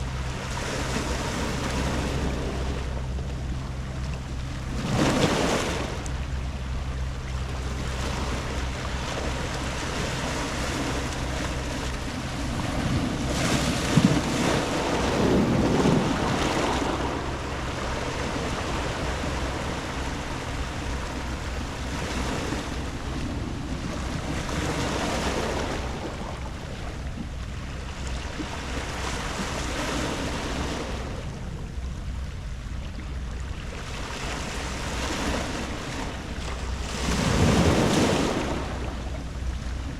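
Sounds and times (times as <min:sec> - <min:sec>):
steady low hum: 0:00.0 - 0:39.9
waves washing on pebble beach: 0:12.5 - 0:20.8, 0:36.8 - 0:38.8.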